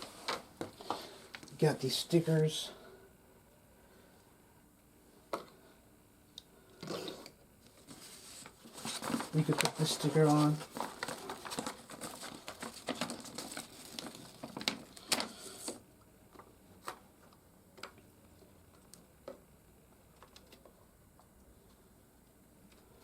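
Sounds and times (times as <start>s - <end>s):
sticker sheet rustling: 7.8s - 15.8s.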